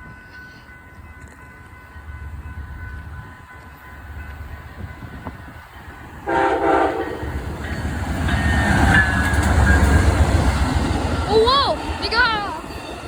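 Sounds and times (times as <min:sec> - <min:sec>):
train rumble passing: 0:00.0 - 0:13.0
train horn blast: 0:06.2 - 0:07.3.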